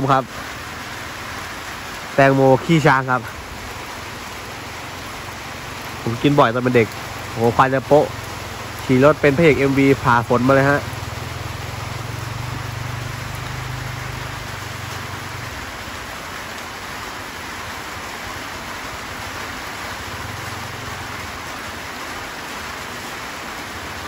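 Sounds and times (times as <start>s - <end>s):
steady rain: 0.0s - 24.0s
small motorcycle engine humming: 3.4s - 16.3s, 17.9s - 22.8s.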